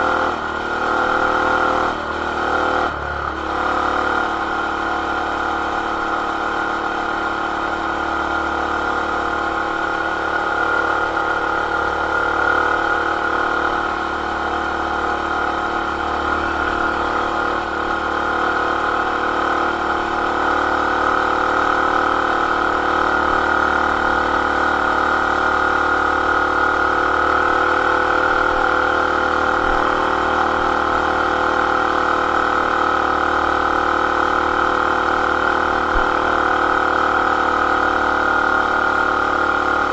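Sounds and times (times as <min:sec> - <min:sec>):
mini bike engine running: 0:00.0 - 0:39.9.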